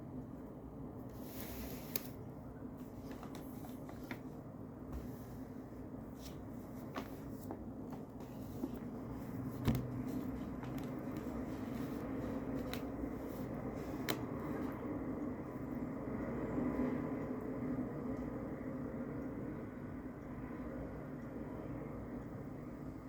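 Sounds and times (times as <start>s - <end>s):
low background hum: 0.0s - 23.0s
paper rustling: 2.8s - 4.4s, 6.1s - 14.2s.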